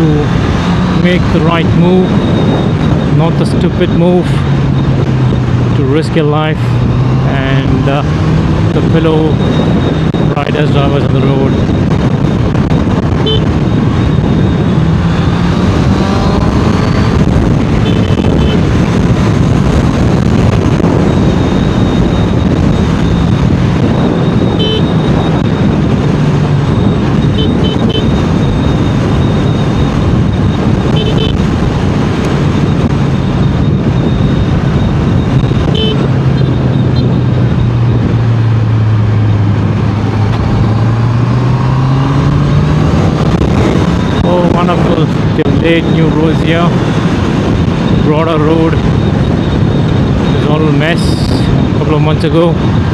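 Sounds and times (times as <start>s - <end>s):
motorcycle engine at speed: 0.0s - 52.9s
road and wind noise: 0.0s - 52.9s
short high beeps: 12.8s - 17.1s, 17.8s - 18.6s, 24.1s - 25.6s, 26.8s - 31.4s, 33.2s - 37.8s.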